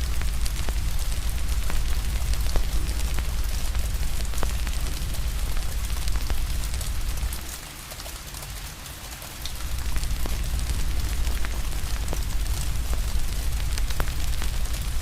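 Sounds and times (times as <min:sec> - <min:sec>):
wood fire crackles and pops: 0:00.0 - 0:07.7, 0:09.4 - 0:15.0
rain hiss: 0:00.0 - 0:15.0
deep low rumble: 0:09.5 - 0:15.0.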